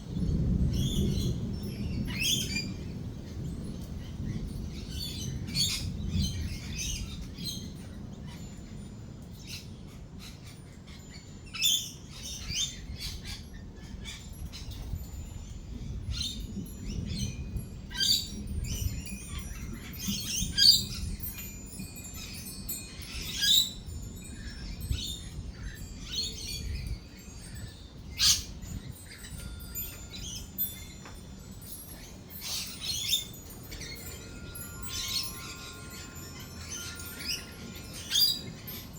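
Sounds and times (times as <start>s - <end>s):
lorikeets chattering and screeching: 31.6s - 38.9s.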